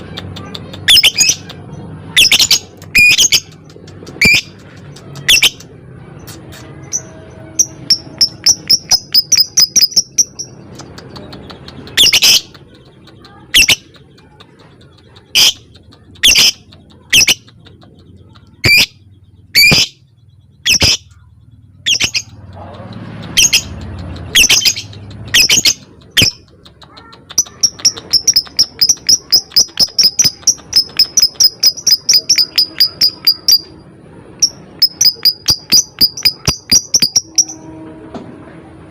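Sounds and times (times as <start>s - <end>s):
lovebird ticking chirps: 6.3s - 33.8s, 34.4s - 37.6s.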